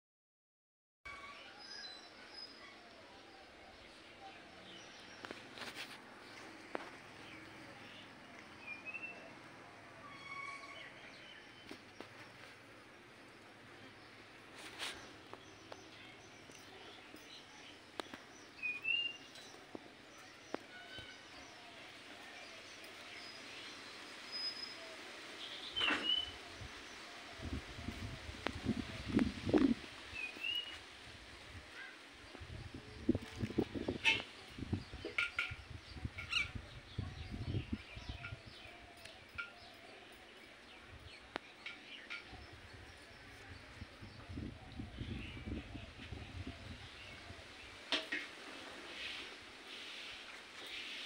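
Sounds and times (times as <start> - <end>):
quiet outdoor background: 1.0 - 51.0.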